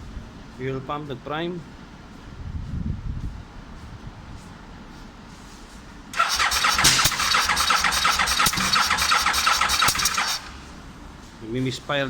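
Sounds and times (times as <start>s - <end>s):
motorcycle starter cranking: 6.2s - 10.8s
engine misfiring: 6.2s - 11.0s.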